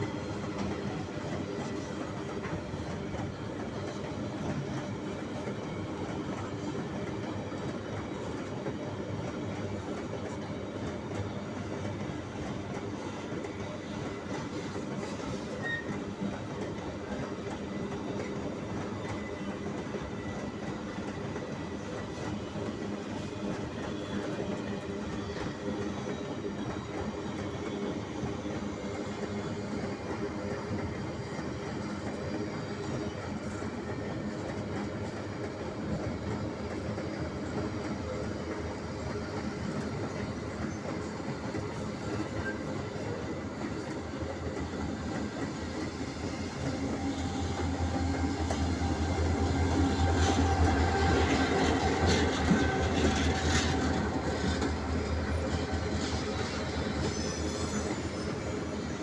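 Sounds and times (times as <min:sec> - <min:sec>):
freight train wheels clattering: 0:32.8 - 0:59.0.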